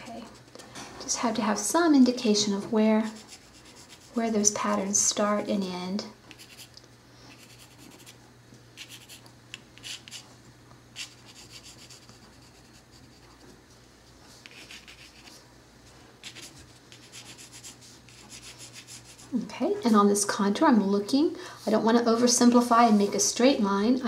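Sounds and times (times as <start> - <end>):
faint low hum: 0.0 - 24.0
pencil sketching on paper: 3.0 - 4.3, 11.0 - 13.3, 14.5 - 15.3, 16.2 - 19.3.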